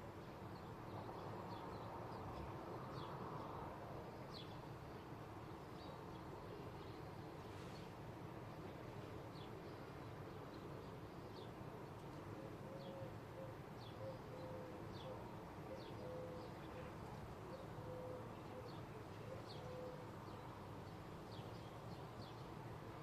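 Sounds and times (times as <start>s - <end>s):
dove cooing: 12.4s - 16.9s, 17.6s - 20.1s.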